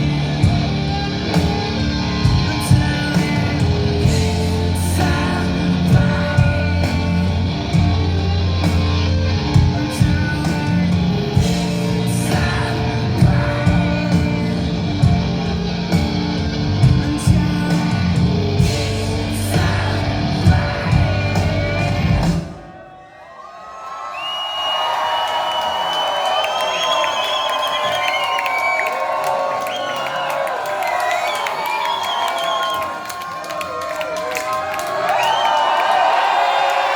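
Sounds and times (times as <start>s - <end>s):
distorted electric guitars: 0.0s - 22.7s
live rock band playing: 0.0s - 22.8s
person singing: 0.0s - 22.8s
drums: 0.0s - 23.1s.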